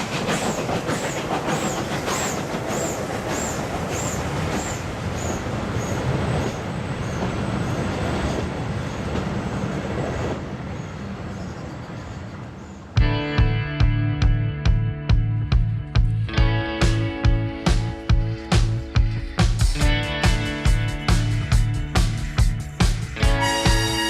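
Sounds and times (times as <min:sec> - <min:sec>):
steam train clickety-clack on rails: 0:00.0 - 0:12.0
music: 0:13.0 - 0:24.0.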